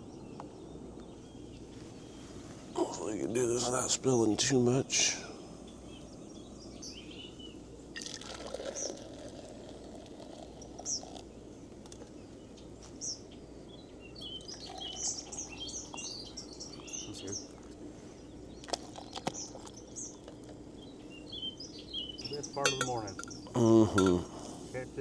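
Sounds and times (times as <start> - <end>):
small birds chirping: 0.0 - 25.0
water pouring into a cup: 8.0 - 11.3, 14.3 - 16.1, 18.6 - 19.8.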